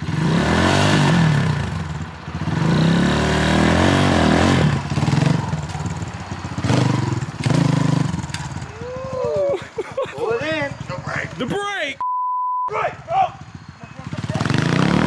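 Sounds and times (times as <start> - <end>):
dirt bike engine revving: 0.0 - 9.5, 13.0 - 15.0.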